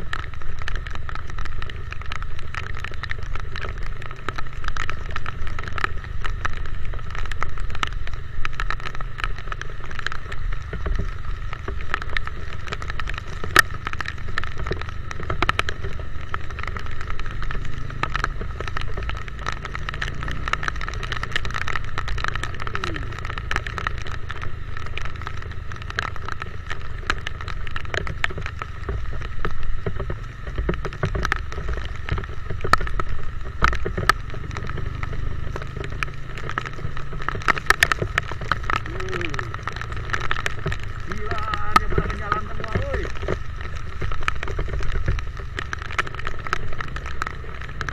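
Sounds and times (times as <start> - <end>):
raindrops tapping microphone: 0.0 - 47.9
rumble of wind and road: 0.0 - 47.9.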